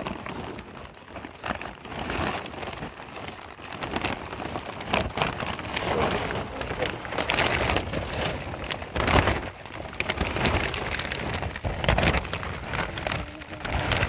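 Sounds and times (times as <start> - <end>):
rain falling: 5.5 - 14.0.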